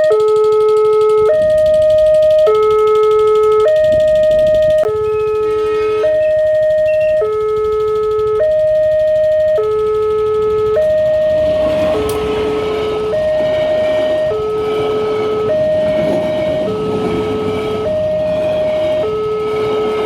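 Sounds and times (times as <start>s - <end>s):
level crossing two-tone alarm: 0.0s - 20.0s
steady rushing noise: 11.0s - 20.0s.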